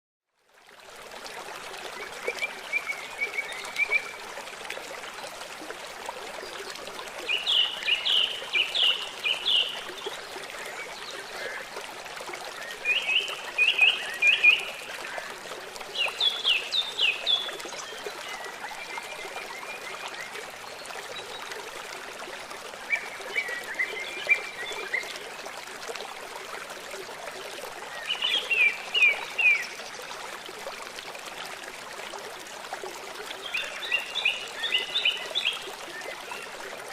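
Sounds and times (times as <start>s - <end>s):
running water trickling: 0.4s - 36.9s
songbirds singing: 7.3s - 11.7s, 33.4s - 36.5s.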